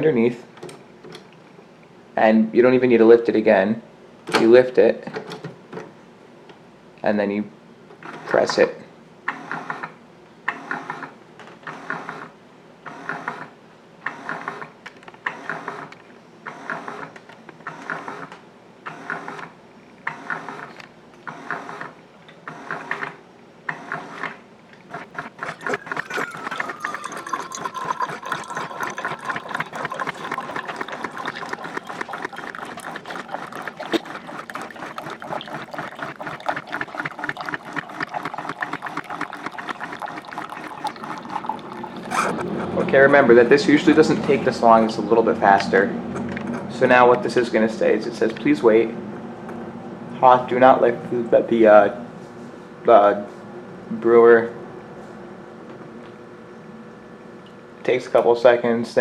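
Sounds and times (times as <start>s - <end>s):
coffee brewer pump pulsing: 24.8s - 42.5s
liquid streaming into cup: 24.8s - 42.5s
brewer rattling run: 24.9s - 42.5s.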